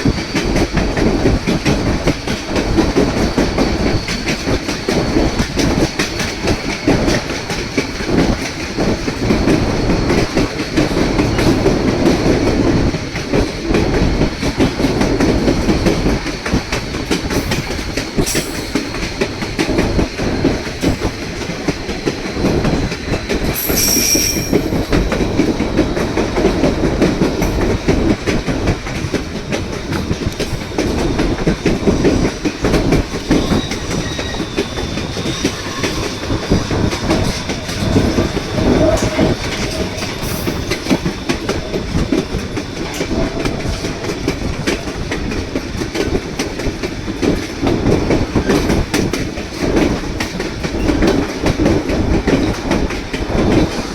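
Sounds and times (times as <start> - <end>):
train wheels clattering on track: 0.0 - 53.9
high-pitched wheel squeal: 23.6 - 24.8.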